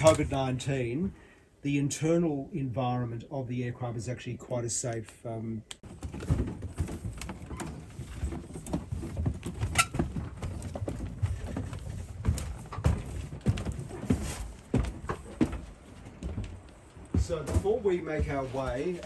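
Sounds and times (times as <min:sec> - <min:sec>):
footsteps in aircraft cabin: 0:05.8 - 0:19.0.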